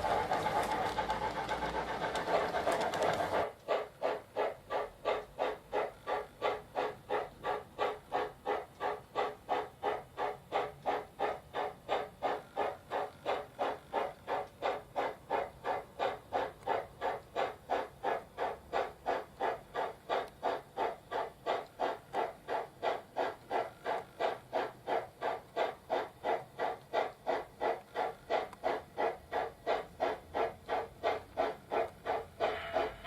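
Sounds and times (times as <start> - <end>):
steam exhaust chuffs through loudspeaker: 0.0 - 33.0.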